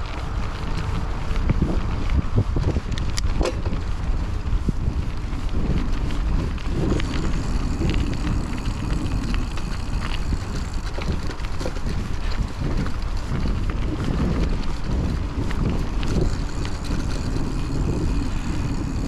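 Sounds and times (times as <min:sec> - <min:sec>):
bicycle clicks and rattles: 0:00.0 - 0:19.0
wind buffeting microphone: 0:00.0 - 0:19.0.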